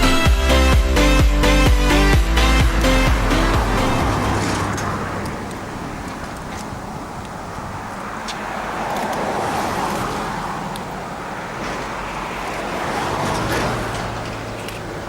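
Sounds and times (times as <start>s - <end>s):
diesel locomotives rumbling past: 0.0s - 8.2s, 9.3s - 15.0s.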